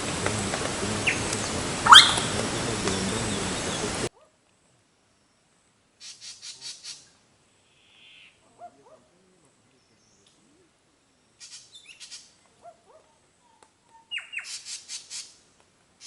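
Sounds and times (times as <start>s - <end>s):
bird calls: 0.0s - 4.1s, 14.0s - 15.4s
raspy bird notes: 0.0s - 4.1s
steady hiss: 0.0s - 4.1s.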